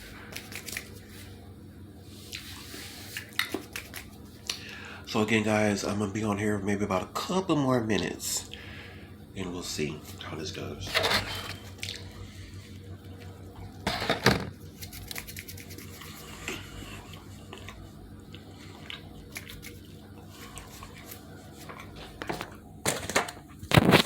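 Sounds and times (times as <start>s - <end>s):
chewing pizza: 0.1s - 1.3s, 2.3s - 4.8s, 14.6s - 22.6s.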